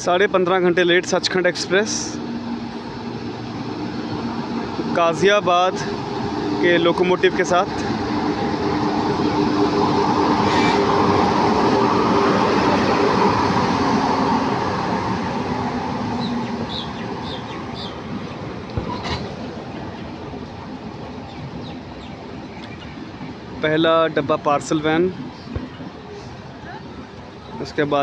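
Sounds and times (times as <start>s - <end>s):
train wheels rumbling on rails: 0.0s - 27.6s
short high squeaks: 10.4s - 10.9s.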